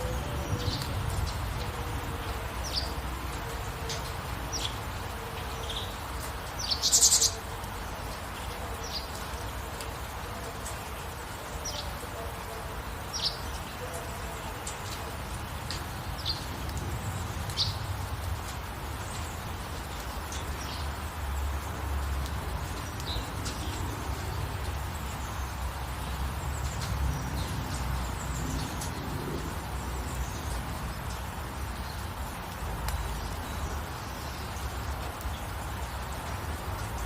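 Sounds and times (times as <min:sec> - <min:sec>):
small birds chirping: 0:00.0 - 0:09.8, 0:14.6 - 0:37.0
rain hissing: 0:00.0 - 0:37.0.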